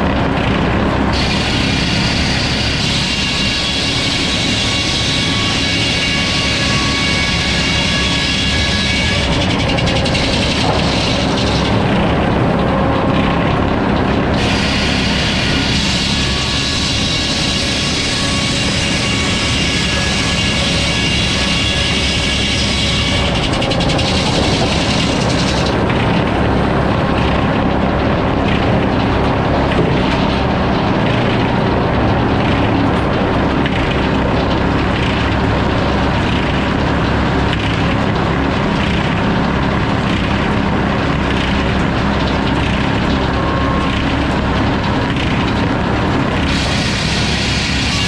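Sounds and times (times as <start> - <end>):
sawmill saw running: 0.0 - 48.0
high whining tone: 1.2 - 29.0.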